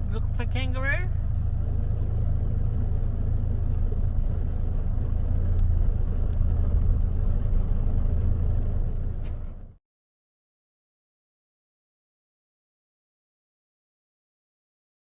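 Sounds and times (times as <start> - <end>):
engine low rumble: 0.0 - 9.8.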